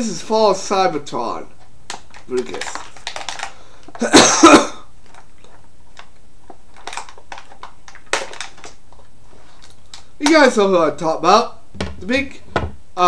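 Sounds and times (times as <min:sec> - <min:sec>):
man coughing: 0:04.0 - 0:04.9.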